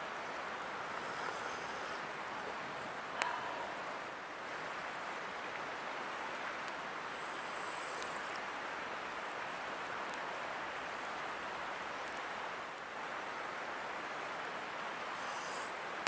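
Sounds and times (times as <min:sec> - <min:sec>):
river rushing: 0:00.0 - 0:16.0
faint high ticks: 0:06.6 - 0:08.5, 0:12.0 - 0:12.9.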